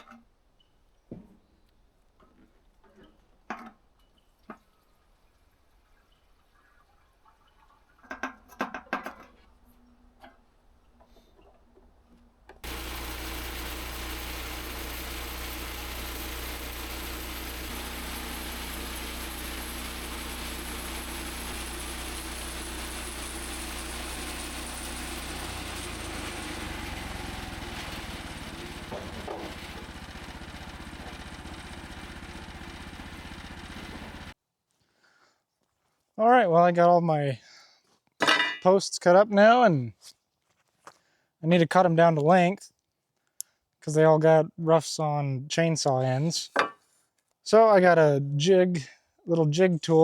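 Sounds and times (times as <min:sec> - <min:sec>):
sawmill gasoline engine running: 0:12.6 - 0:34.4.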